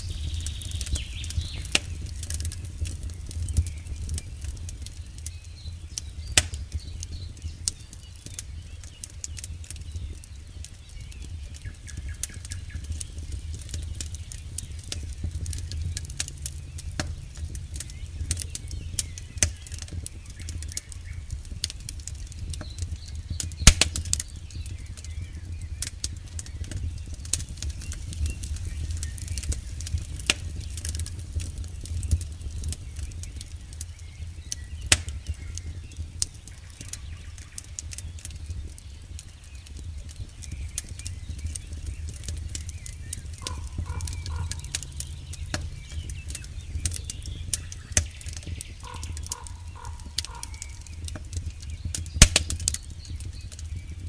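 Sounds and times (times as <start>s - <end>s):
flames rumbling: 0.0s - 54.0s
wood popping and snapping: 11.5s - 25.2s, 25.8s - 35.6s, 36.2s - 53.7s.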